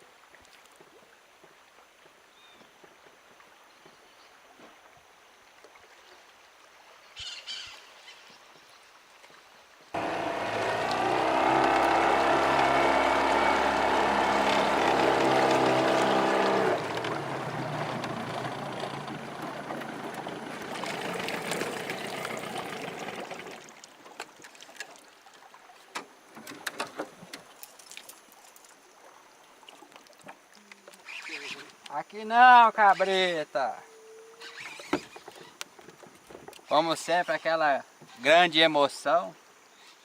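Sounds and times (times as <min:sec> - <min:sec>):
rushing water: 0:04.2 - 0:39.6
outboard motor running: 0:10.0 - 0:23.8.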